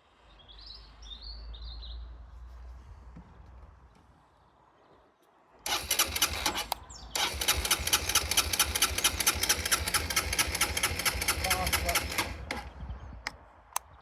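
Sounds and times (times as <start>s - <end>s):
motorcycle engine starter cranking: 5.6s - 12.8s
motorcycle engine running: 7.2s - 12.7s.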